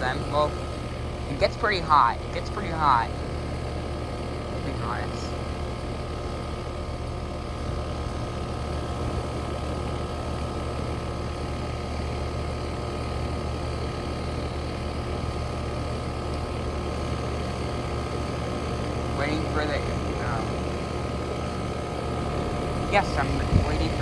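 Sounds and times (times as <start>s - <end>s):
air conditioner units humming: 0.0s - 24.0s.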